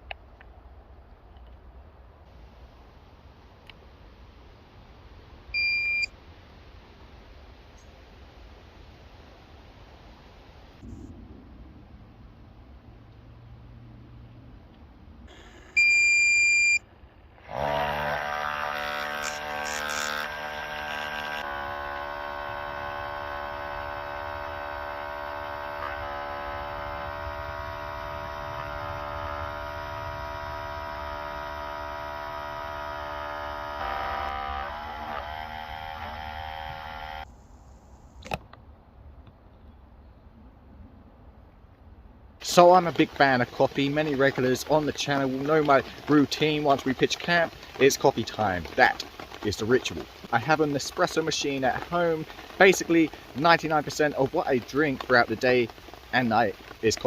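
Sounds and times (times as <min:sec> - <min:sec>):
pump buzzing hum: 0:05.5 - 0:06.2, 0:15.3 - 0:38.4, 0:42.4 - 0:57.0
espresso machine beep: 0:05.6 - 0:06.1, 0:15.8 - 0:16.8.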